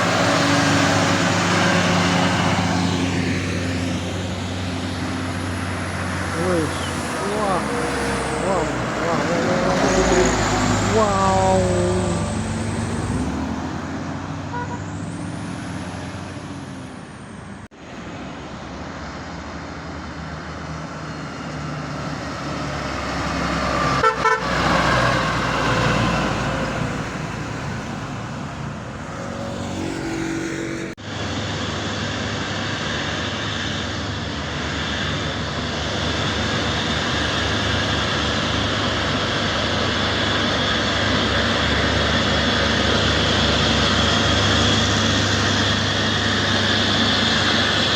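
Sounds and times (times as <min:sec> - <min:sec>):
passing traffic: 0:00.0 - 0:47.9
truck diesel engines labouring: 0:00.0 - 0:47.9
horn toots: 0:24.0 - 0:24.6.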